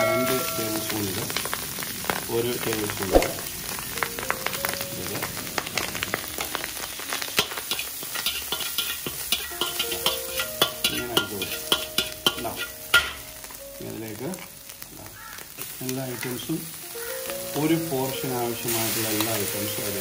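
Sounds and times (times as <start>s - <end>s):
prawns sizzling in hot oil: 0.0s - 20.0s
spatula clicking and scraping pan: 7.4s - 13.2s.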